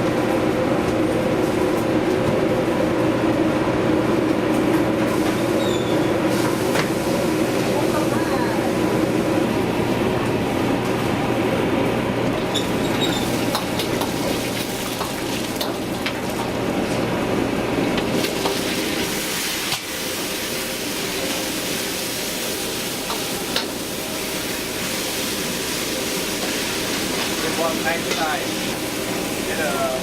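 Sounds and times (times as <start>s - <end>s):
low kitchen hum: 0.0s - 30.0s
food sizzling in a pan: 18.1s - 29.9s.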